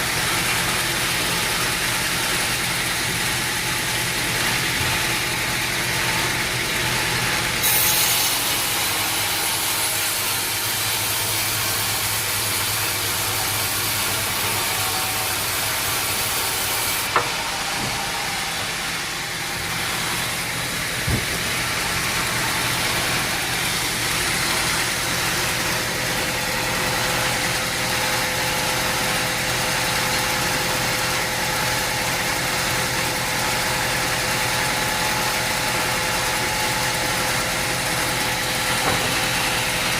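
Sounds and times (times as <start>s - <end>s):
sawmill machinery engine hum: 0.0s - 39.9s
sharp knocks: 21.0s - 21.6s.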